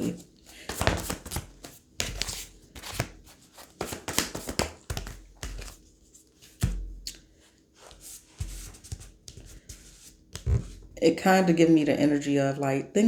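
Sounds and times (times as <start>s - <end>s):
cards being shuffled: 0.0s - 5.8s, 6.4s - 10.8s.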